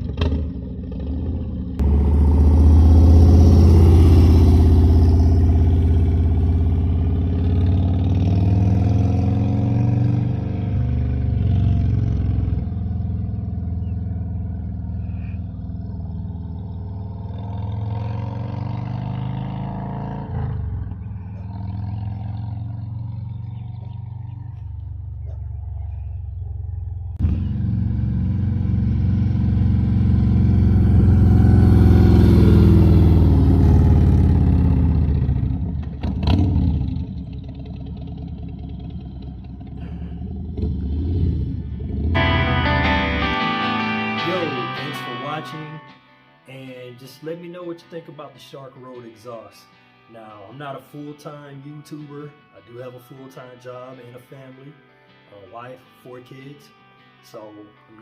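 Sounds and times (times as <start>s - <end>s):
motorcycle engine revving: 0.0s - 43.4s.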